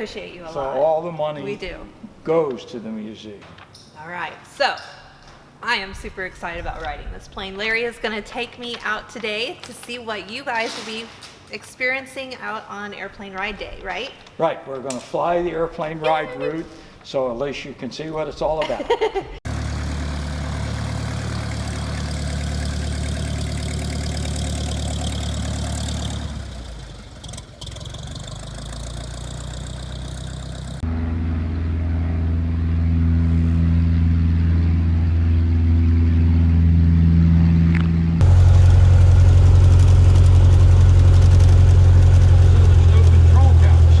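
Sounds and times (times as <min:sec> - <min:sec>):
propeller airplane engine drone: 0:19.5 - 0:44.0.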